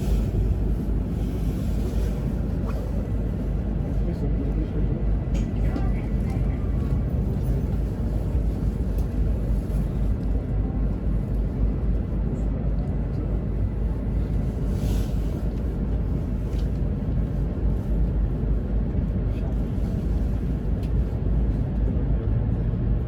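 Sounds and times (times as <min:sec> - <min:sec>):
train running rumble inside cabin: 0:00.0 - 0:23.0.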